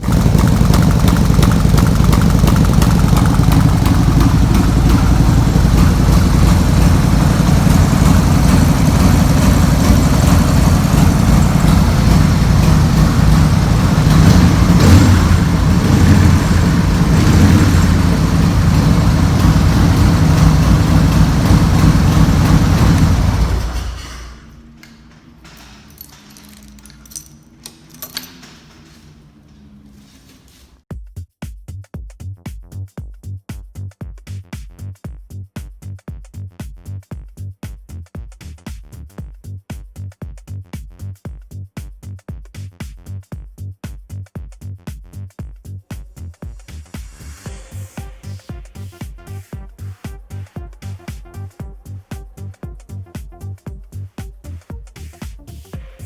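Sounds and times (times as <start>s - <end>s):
motorcycle engine running: 0.0s - 26.1s.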